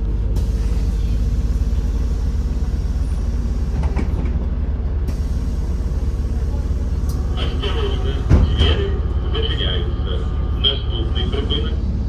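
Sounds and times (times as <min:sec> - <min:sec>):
bus engine drone: 0:00.0 - 0:12.0.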